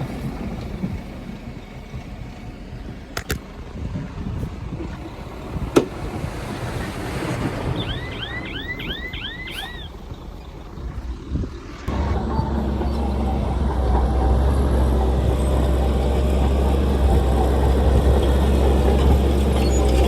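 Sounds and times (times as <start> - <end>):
heavy machinery rumbling: 0.0 - 20.0
high chirps: 7.6 - 10.0.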